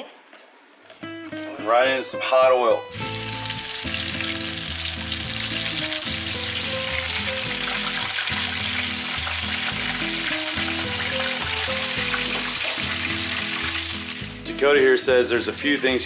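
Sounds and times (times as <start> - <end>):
background music with low notes: 1.0 - 16.0
deep-frying sizzling in hot oil: 2.9 - 14.4.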